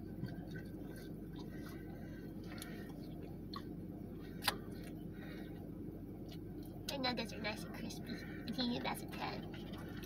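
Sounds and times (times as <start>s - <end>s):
chewing crispy food: 0.0s - 6.8s
steady low hum: 0.0s - 10.0s
wet mouth clicks: 4.4s - 5.0s.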